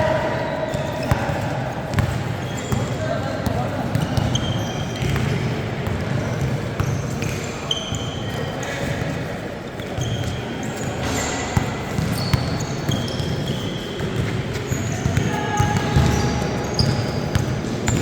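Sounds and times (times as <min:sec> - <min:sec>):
murmur of spectators: 0:00.0 - 0:18.0
sneakers squeaking on court: 0:00.0 - 0:18.0
basketball bouncing: 0:01.0 - 0:07.4, 0:11.0 - 0:13.4, 0:15.0 - 0:18.0.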